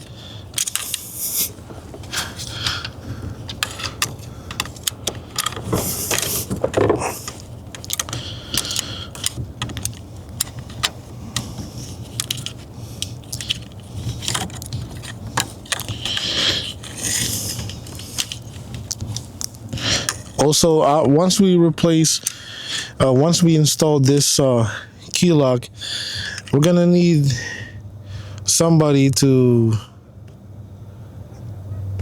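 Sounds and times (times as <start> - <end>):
metal and plastic parts clicking: 0.0 - 20.4.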